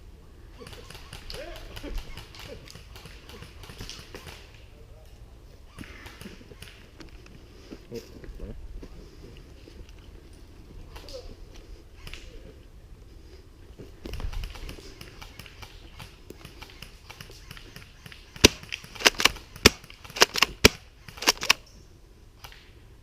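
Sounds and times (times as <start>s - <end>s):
airsoft gun shots: 16.8s - 21.6s.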